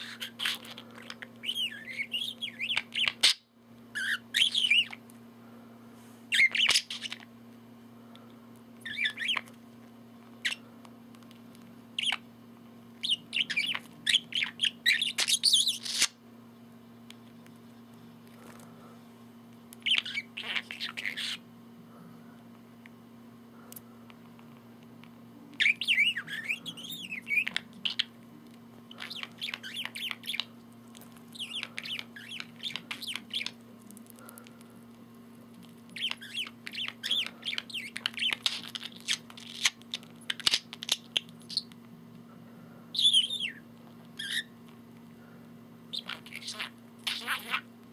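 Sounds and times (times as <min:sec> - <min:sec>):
budgerigar chattering and warbling: 0:00.0 - 0:03.4, 0:19.8 - 0:21.4, 0:28.9 - 0:30.5, 0:31.4 - 0:33.6, 0:45.9 - 0:47.7.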